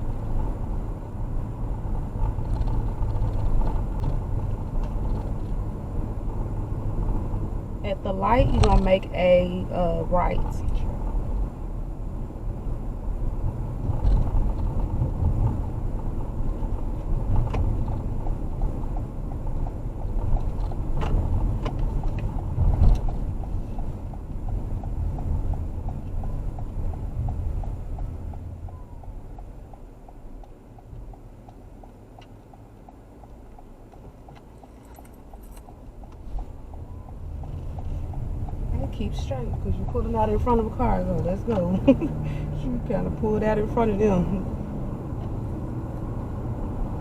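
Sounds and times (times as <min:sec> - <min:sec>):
car road and engine noise: 0:00.0 - 0:47.0
turn signal ticking: 0:00.0 - 0:47.0.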